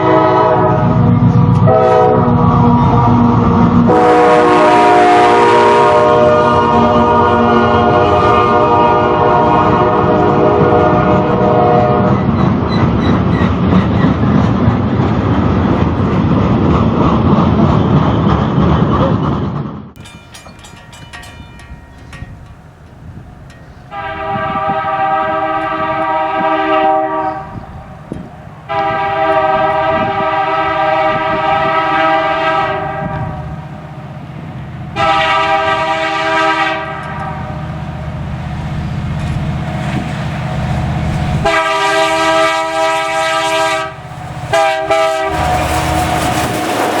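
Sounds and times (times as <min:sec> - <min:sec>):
locomotive air horn blasts: 0:00.0 - 0:02.4, 0:03.8 - 0:12.2, 0:23.9 - 0:27.8, 0:28.7 - 0:33.6, 0:35.0 - 0:37.7, 0:41.4 - 0:46.5
low rumble of passing train: 0:00.0 - 0:47.0.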